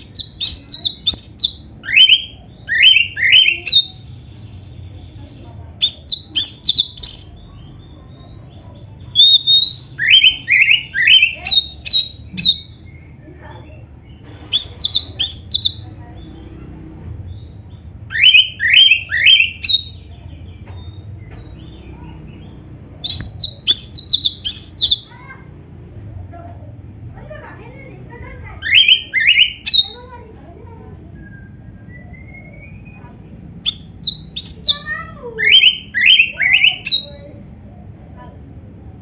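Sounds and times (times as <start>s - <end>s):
bird singing whistled notes: 0.0s - 4.1s, 5.8s - 13.2s, 14.1s - 16.3s, 17.3s - 25.1s, 28.6s - 30.1s, 31.1s - 37.3s.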